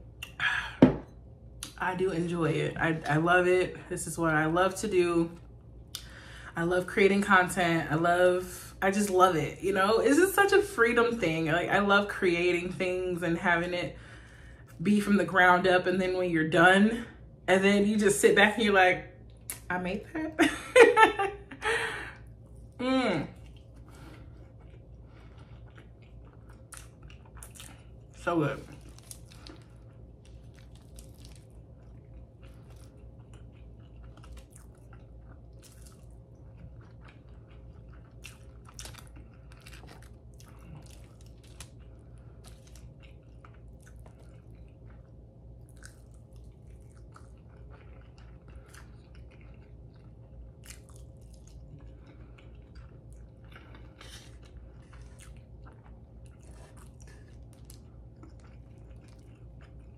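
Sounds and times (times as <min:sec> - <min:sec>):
steady low hum: 0:00.0 - 0:59.9
person chewing food: 0:22.2 - 0:59.9.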